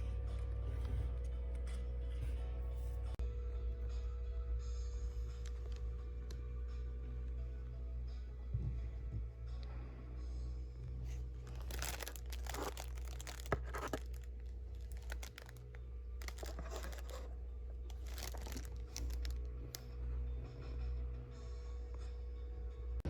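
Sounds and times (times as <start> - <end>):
low hum: 0.0 - 23.0
packaging tearing and crinkling: 11.4 - 17.3, 17.9 - 19.8.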